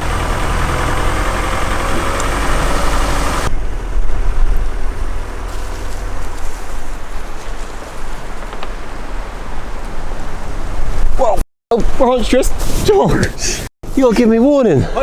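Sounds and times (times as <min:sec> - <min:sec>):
car engine running: 0:00.0 - 0:07.2
rumble of tyres on rough track: 0:00.0 - 0:11.3.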